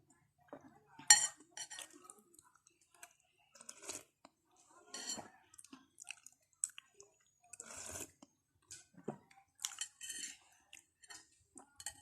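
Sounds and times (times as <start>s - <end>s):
person chewing and slurping: 7.6s - 8.3s.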